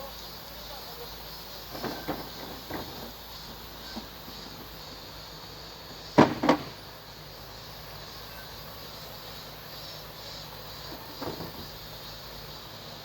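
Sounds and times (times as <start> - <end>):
steady background noise: 0.0 - 13.0
sharp knocks: 6.2 - 6.8.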